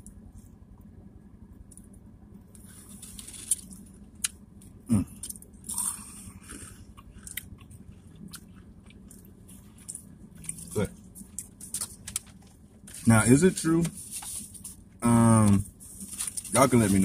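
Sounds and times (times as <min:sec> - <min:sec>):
crunchy chewing: 0:02.6 - 0:13.1.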